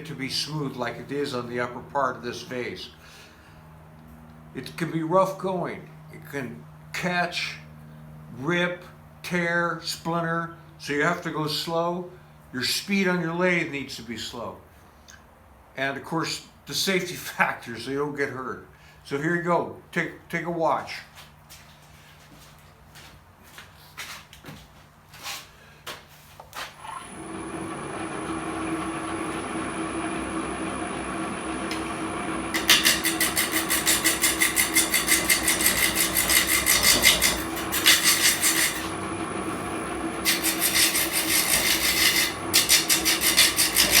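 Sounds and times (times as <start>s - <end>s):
lathe motor humming: 26.8s - 44.0s
tool rasping on spinning wood: 27.0s - 44.0s.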